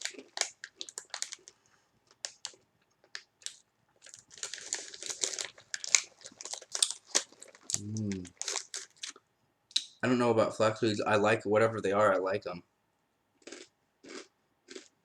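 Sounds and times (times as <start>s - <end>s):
snack bag crinkling: 0.0s - 9.2s.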